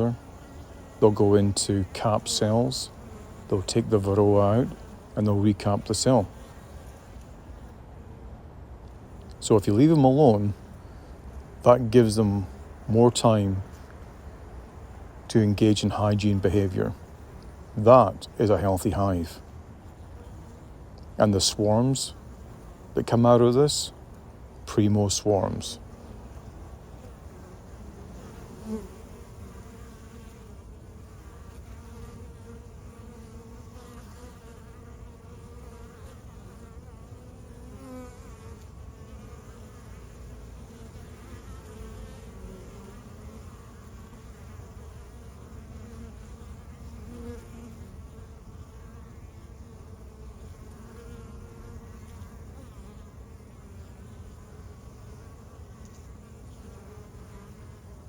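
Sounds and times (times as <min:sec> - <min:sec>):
single bee buzzing past: 0:00.0 - 0:08.2, 0:25.8 - 0:58.0
bee colony buzzing: 0:00.0 - 0:58.0.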